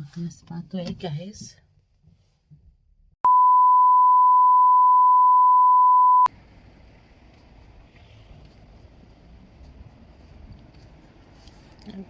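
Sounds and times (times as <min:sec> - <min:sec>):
loud steady electronic beep: 0:03.3 - 0:06.3.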